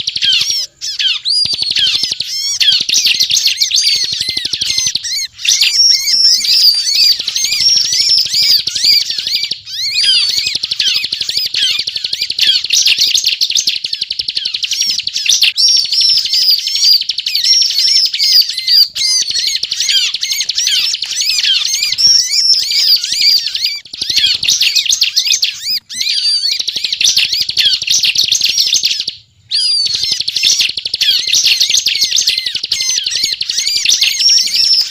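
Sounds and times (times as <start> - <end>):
bird singing rapid chirps: 0.0 - 34.9.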